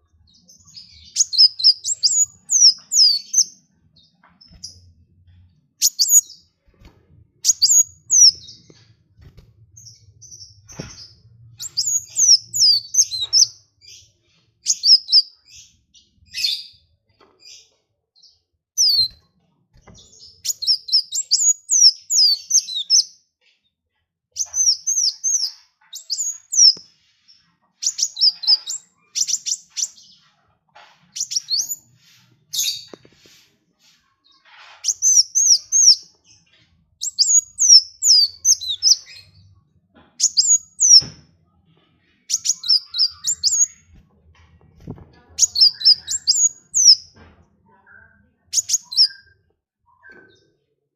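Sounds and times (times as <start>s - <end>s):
songbird chirping: 0.0s - 23.3s, 24.4s - 50.8s.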